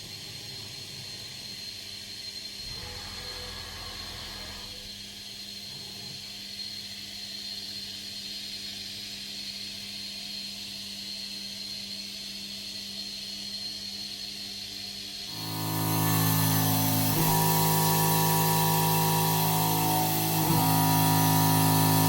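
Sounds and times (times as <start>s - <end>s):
milling machine whining: 2.6s - 5.1s, 15.3s - 22.0s.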